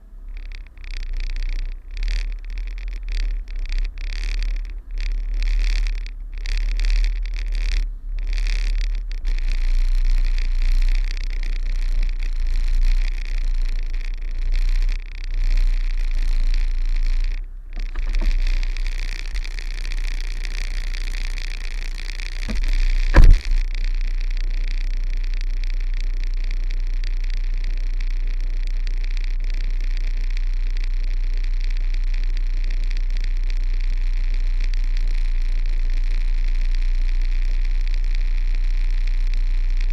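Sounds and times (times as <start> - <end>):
diesel truck engine running: 0.0 - 24.6
heavy thump: 17.8 - 19.5, 22.5 - 23.6.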